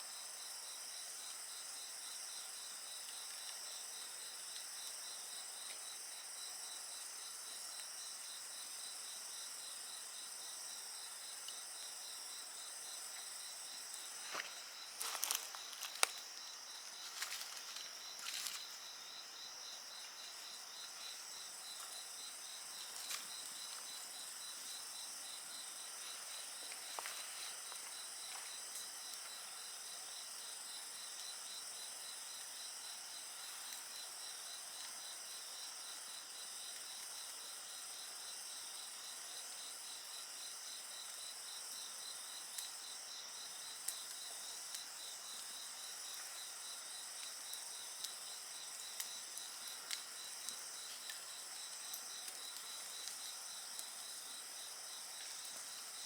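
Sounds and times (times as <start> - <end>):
crickets and insects chorus: 0.0 - 56.0
wood fire crackling: 13.9 - 19.0.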